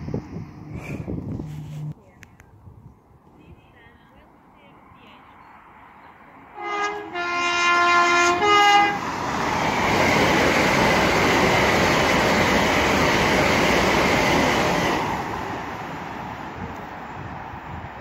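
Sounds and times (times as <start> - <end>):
train rushing past: 0.0 - 2.0, 4.3 - 18.0
two-tone train horn: 6.6 - 9.0.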